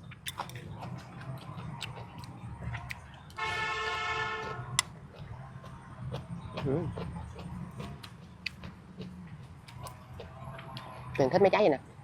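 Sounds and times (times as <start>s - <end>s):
horn steady tone: 3.4s - 4.8s.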